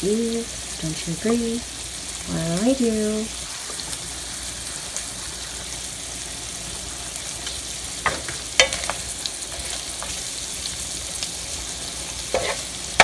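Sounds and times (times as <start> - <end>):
shrimp sizzling in butter: 0.0 - 13.0
wooden utensil scraping pan: 12.3 - 12.8.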